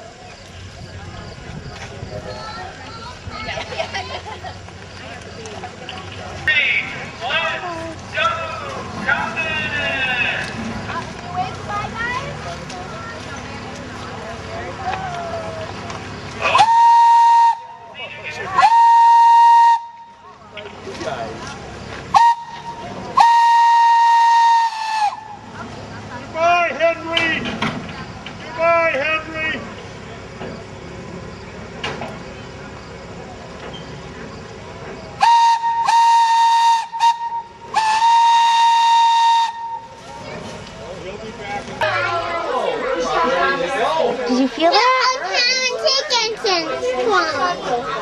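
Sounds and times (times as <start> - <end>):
steam locomotive whistle blasts: 16.5 - 17.9, 18.6 - 20.2, 22.1 - 25.4, 35.2 - 40.0.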